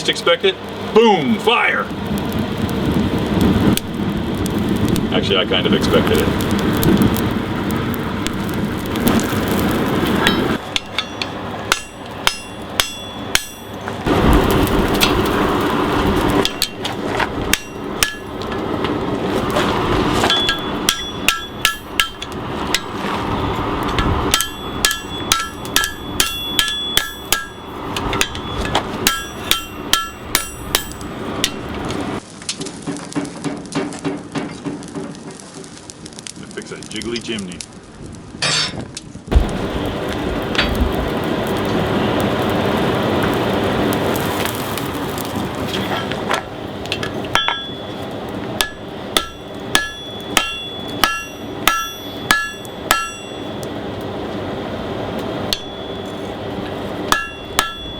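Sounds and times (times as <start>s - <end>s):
coal forge roaring: 0.0s - 57.9s
hammer striking metal: 10.2s - 13.9s, 16.4s - 16.9s, 17.5s - 18.3s, 20.3s - 22.9s, 24.0s - 31.7s, 47.3s - 47.8s, 48.6s - 53.6s, 55.5s - 56.1s, 57.1s - 57.9s.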